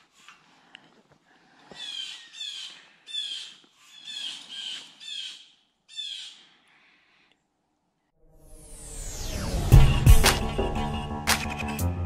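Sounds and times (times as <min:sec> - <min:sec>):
bird harsh calls: 0:01.7 - 0:07.0.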